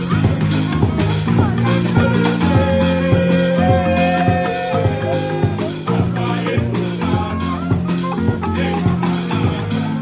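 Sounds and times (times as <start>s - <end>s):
marimba band playing: 0.0s - 10.0s.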